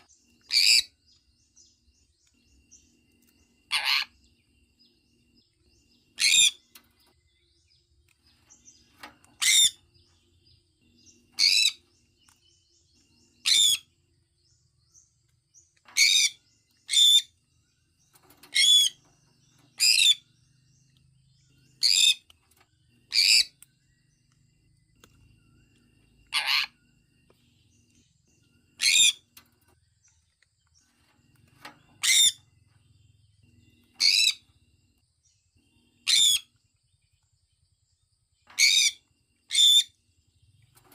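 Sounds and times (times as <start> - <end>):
parrot chirping: 0.5 - 0.9, 3.7 - 4.2, 6.2 - 6.7, 9.3 - 9.8, 11.1 - 11.8, 13.4 - 13.9, 16.0 - 17.4, 23.1 - 23.6, 26.3 - 26.8, 28.8 - 29.2, 32.0 - 32.4, 33.9 - 34.5, 36.0 - 36.5, 38.6 - 40.0.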